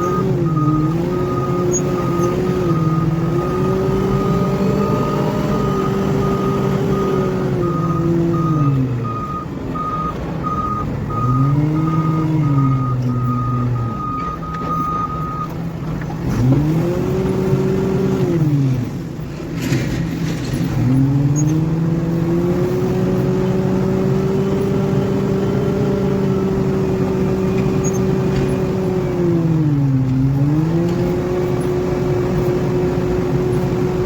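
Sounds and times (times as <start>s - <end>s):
reversing alarm beeping: 0.0s - 15.6s
diesel engine revving: 0.0s - 34.0s.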